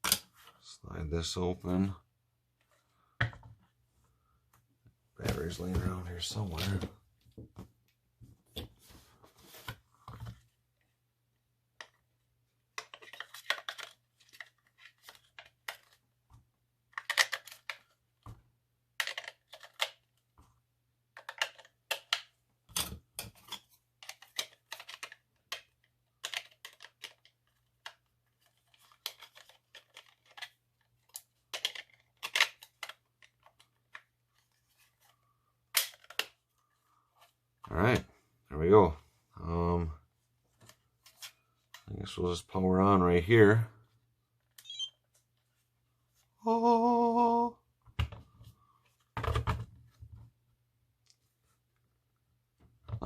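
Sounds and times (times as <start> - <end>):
small plastic clicks and rattles: 21.2 - 34.1.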